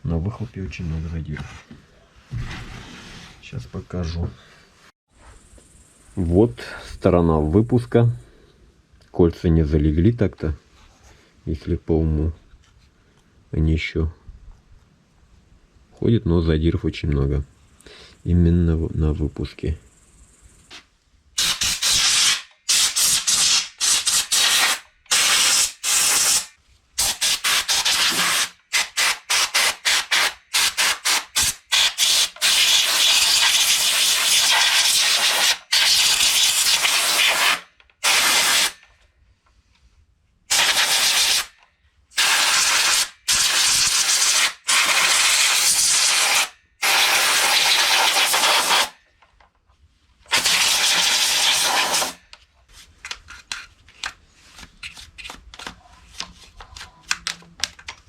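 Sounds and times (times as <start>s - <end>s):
pressurised spray hissing: 42.2s - 49.0s, 50.3s - 52.2s.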